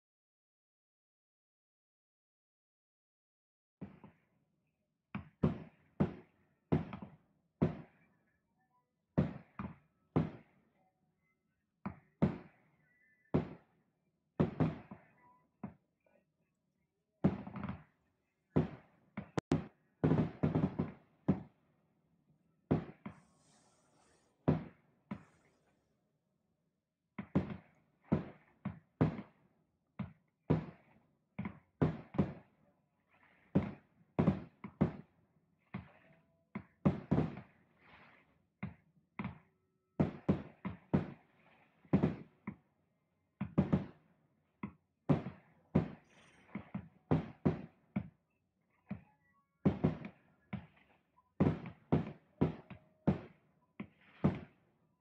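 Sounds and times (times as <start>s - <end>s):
fireworks thumps and bangs: 5.2s - 8.1s, 9.2s - 10.6s, 11.9s - 12.6s, 13.3s - 13.6s, 14.4s - 15.8s, 17.2s - 17.9s, 18.5s - 21.6s, 22.7s - 25.6s, 27.2s - 29.4s, 30.0s - 32.5s, 33.3s - 42.6s, 43.4s - 44.0s, 45.1s - 48.2s, 49.6s - 54.6s
hissing crackle of fireworks: 23.1s - 24.5s.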